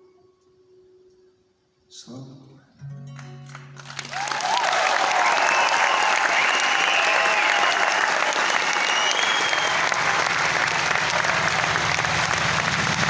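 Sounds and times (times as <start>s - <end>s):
audience applauding and cheering: 3.7s - 13.0s
high whistles: 4.1s - 13.0s.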